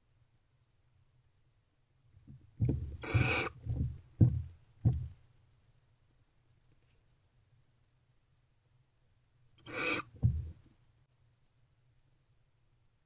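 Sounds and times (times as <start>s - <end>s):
thumps of owls moving: 2.2s - 5.2s, 9.7s - 10.7s
owl hissing screech: 3.0s - 3.6s, 9.6s - 10.2s.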